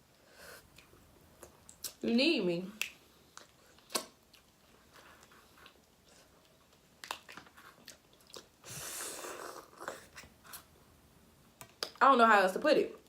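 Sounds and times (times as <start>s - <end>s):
chewing seafood: 2.8s - 8.7s.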